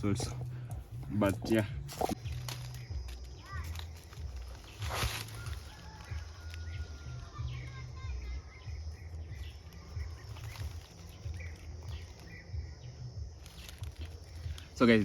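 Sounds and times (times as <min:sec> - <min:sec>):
faint bird calls and chirps: 0:01.3 - 0:15.0.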